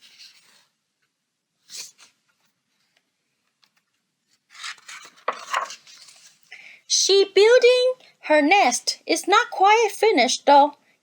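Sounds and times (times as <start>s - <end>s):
paper page rustling: 0.0s - 6.5s.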